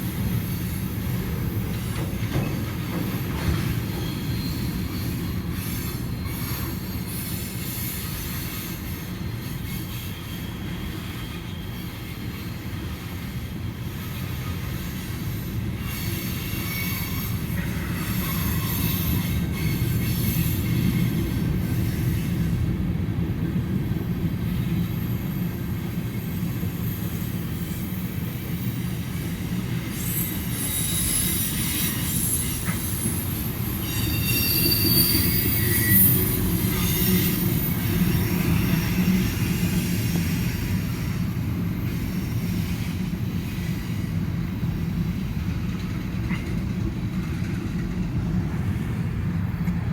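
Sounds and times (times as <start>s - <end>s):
train wheels rumbling on rail: 0.0s - 49.9s
high wheel squealing: 26.4s - 40.8s.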